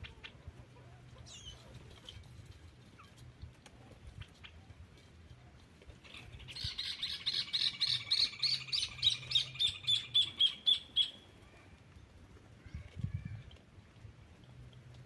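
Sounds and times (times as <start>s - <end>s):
bird trilling: 6.4s - 11.2s.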